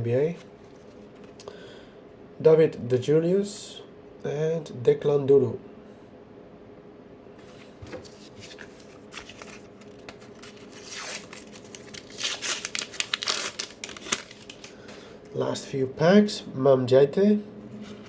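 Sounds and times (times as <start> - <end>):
foil wrapper tearing and crinkling: 8.5 - 14.8.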